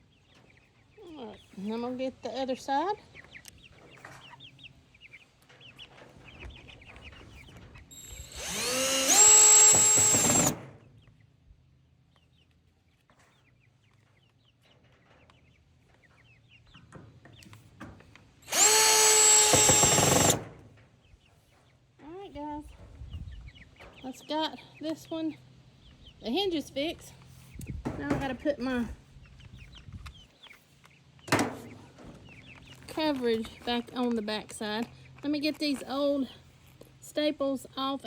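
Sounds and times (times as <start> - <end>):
chickens clucking: 0.0 - 8.0, 10.8 - 18.4, 20.5 - 37.0
cordless drill driving screws: 7.9 - 10.6, 18.4 - 20.4.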